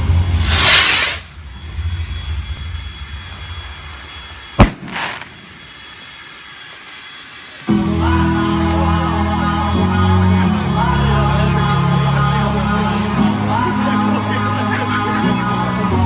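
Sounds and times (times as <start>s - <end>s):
firework bang: 0.0s - 5.8s
firework hiss: 0.0s - 9.7s
music: 7.7s - 16.0s.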